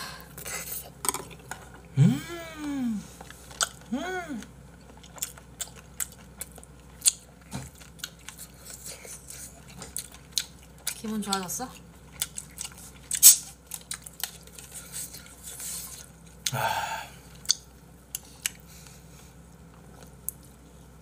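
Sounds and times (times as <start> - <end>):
person humming mmm: 1.9 - 3.2, 3.9 - 4.5, 16.5 - 17.2
person chewing: 3.1 - 20.6
wet mouth clicks: 17.4 - 17.6.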